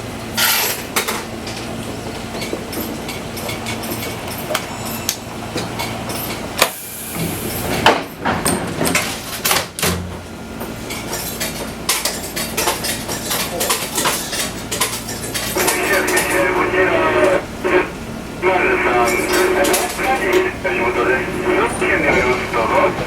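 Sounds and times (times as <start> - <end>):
railcar humming: 0.0 - 9.5, 10.1 - 23.0.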